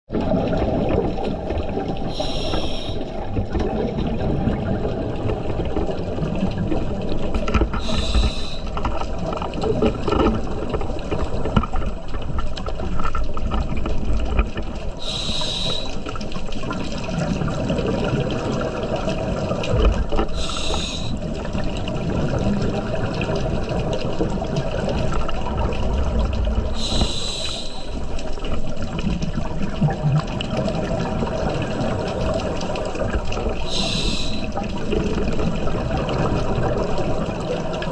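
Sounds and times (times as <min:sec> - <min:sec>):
underwater rumble: 0:00.1 - 0:37.9
diver breathing through regulator: 0:02.1 - 0:03.1, 0:07.8 - 0:08.8, 0:15.0 - 0:16.0, 0:20.3 - 0:21.2, 0:26.7 - 0:28.0, 0:33.6 - 0:34.6.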